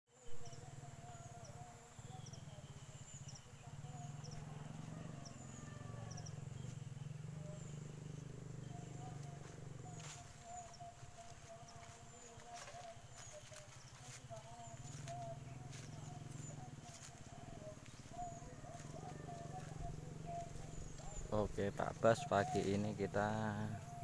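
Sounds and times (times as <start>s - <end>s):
small birds chirping: 0.1s - 24.0s
footsteps through dry plant litter: 4.6s - 24.0s.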